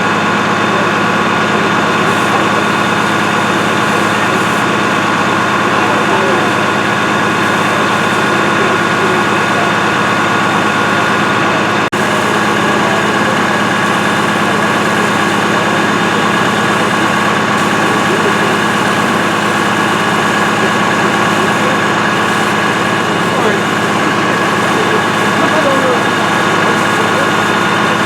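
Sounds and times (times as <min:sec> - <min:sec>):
heavy engine idling: 0:00.0 - 0:28.0.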